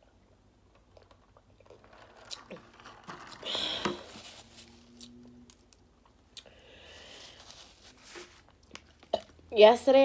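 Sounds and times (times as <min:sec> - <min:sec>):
paper napkin rustle: 0:04.0 - 0:05.0, 0:07.0 - 0:08.6.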